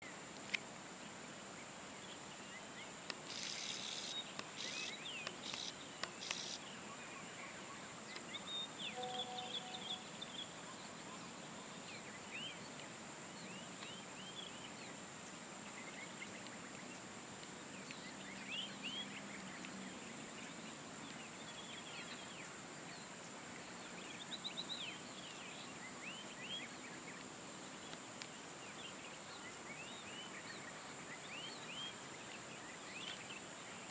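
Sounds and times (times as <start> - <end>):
birds chirping: 1.0 - 33.9
high-pitched drone: 9.0 - 9.9.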